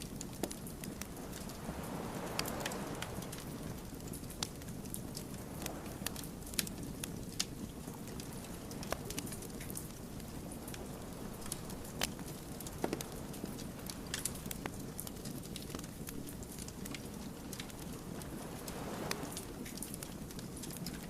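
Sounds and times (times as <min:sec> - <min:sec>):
low rush of flames: 0:00.0 - 0:21.0
wood fire crackling and popping: 0:00.0 - 0:21.0.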